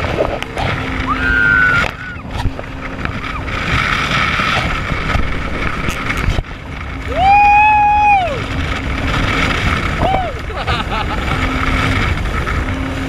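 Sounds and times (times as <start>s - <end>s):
jet ski engine and water spray: 0.0s - 13.0s
wind on microphone: 0.0s - 13.0s
pitched tone rising and falling: 0.6s - 3.5s.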